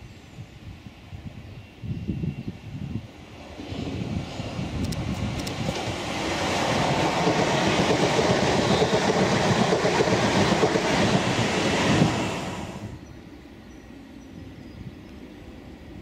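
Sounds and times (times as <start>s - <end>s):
train wheels on rails: 3.2s - 13.0s.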